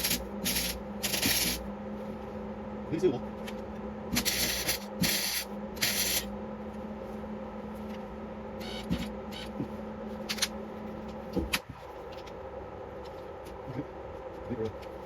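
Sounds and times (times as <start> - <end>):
welding crackling hiss: 0.0 - 1.6, 4.2 - 6.3
steady hum: 0.0 - 15.0.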